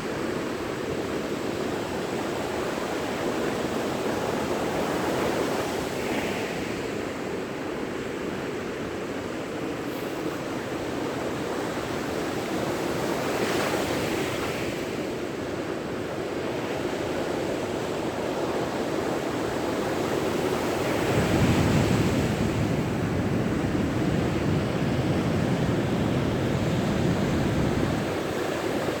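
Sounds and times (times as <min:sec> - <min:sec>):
waves breaking on a beach: 0:00.0 - 0:29.0
wind rumble on microphone: 0:20.1 - 0:29.0.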